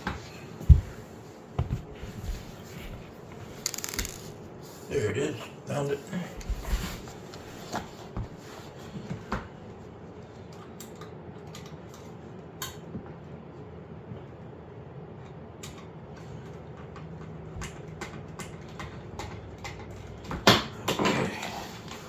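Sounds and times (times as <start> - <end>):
low background hum: 0.0 - 22.0
parts and tool clicking: 3.6 - 4.4.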